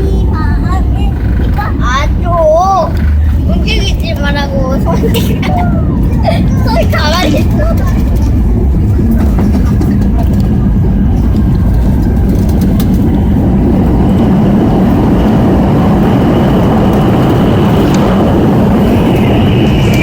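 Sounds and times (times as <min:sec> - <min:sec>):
jet engines and airflow rumble: 0:00.0 - 0:20.0
faint high whine: 0:13.2 - 0:20.0.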